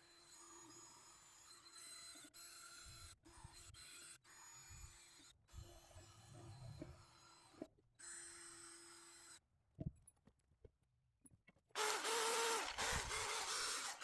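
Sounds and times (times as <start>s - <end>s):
drill with wire brush whirring: 11.8s - 14.0s.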